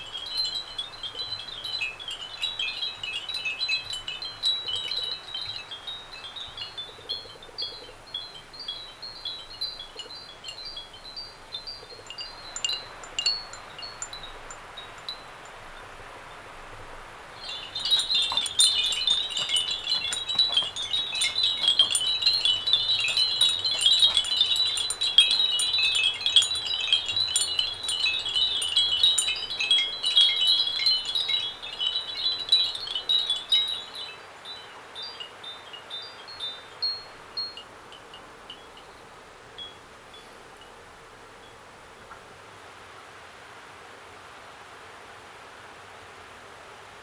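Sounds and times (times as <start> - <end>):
ceramic wind bells ringing: 0.0 - 7.4, 8.2 - 34.6.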